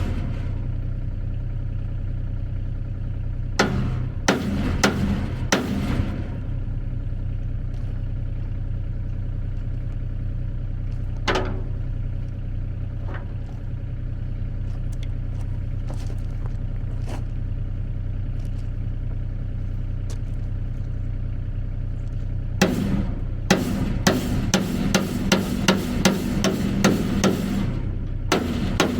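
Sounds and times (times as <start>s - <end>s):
engine idling: 0.0s - 28.9s
metal knocks and clanks: 3.6s - 6.7s, 11.1s - 13.8s, 22.6s - 28.9s.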